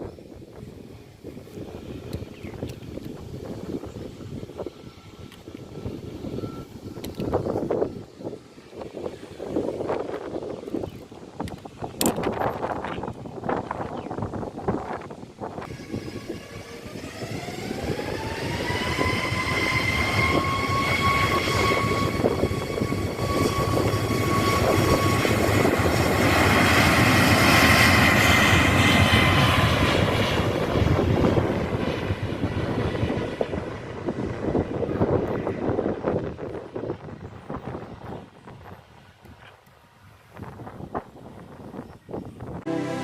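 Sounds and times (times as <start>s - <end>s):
jet engines whining: 0.0s - 13.4s, 14.2s - 39.1s, 42.6s - 43.0s
rushing roar of passing plane: 15.6s - 36.4s.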